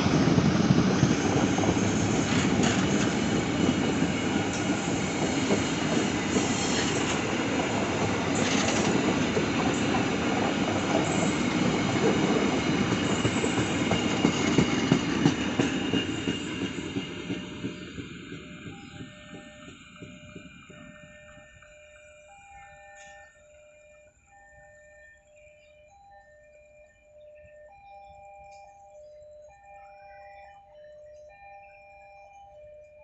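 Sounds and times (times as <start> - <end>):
train wheels rumbling on rail: 0.0 - 21.7.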